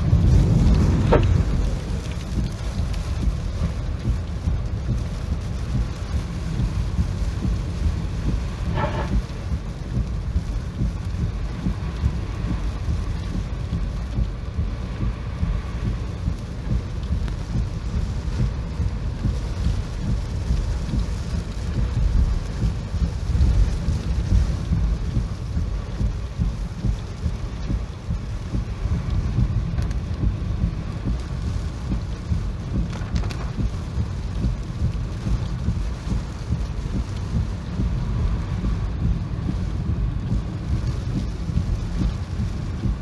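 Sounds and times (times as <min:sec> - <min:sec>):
rumbling roar of wind: 0:00.0 - 0:05.0, 0:05.7 - 0:17.0
heavy rain: 0:00.0 - 0:43.0.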